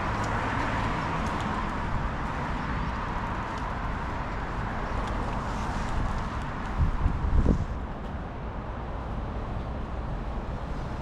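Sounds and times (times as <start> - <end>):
wind on microphone: 4.8 - 8.0.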